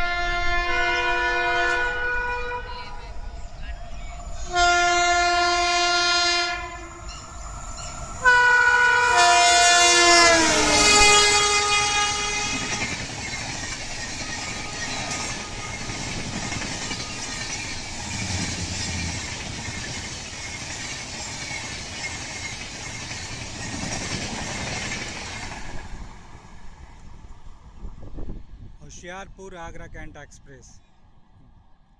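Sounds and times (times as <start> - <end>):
locomotive horn blasts: 0.0 - 3.0, 4.4 - 7.0, 8.2 - 13.0, 14.4 - 16.0
train wheels clattering over rail joints: 11.0 - 26.1.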